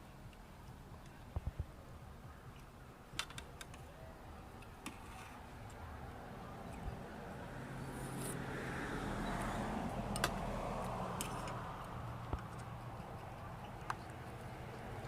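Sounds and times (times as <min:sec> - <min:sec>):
motor vehicle passing: 0:05.3 - 0:15.0.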